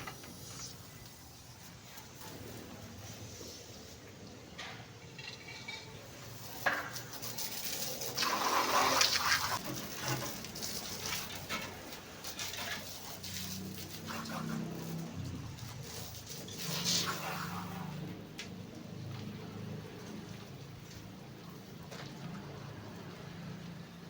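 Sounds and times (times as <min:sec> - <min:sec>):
water splashing on truck: 0:06.0 - 0:24.0.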